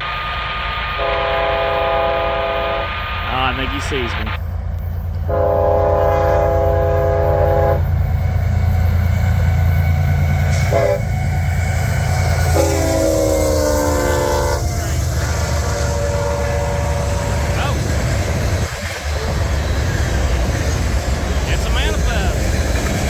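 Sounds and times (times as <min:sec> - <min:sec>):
locomotive air horn blasts: 0:00.0 - 0:04.0, 0:05.3 - 0:08.0, 0:09.3 - 0:17.6
locomotive and train rumbling: 0:00.0 - 0:23.0.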